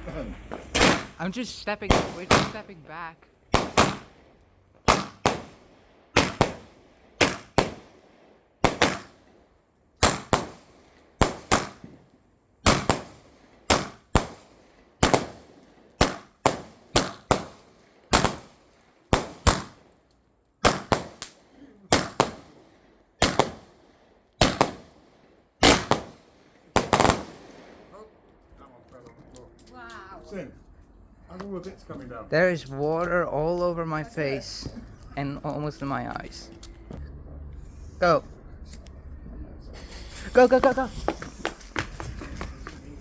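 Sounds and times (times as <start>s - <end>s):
firework bangs with echo: 0.0s - 2.8s, 3.5s - 9.3s, 10.0s - 19.8s, 20.6s - 23.8s, 24.4s - 28.1s, 39.8s - 43.0s.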